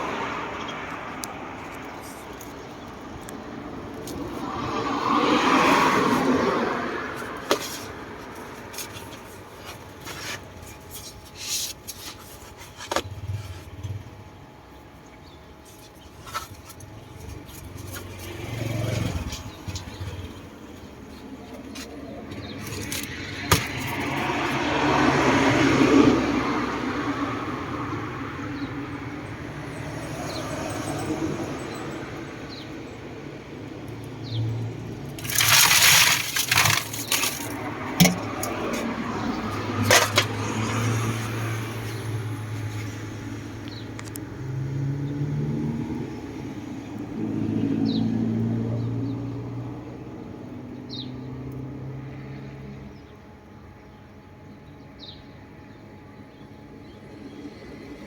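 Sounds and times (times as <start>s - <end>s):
passing motor vehicles hum: 0.0s - 10.8s, 12.9s - 58.0s
crunching fried bananas: 35.2s - 38.9s.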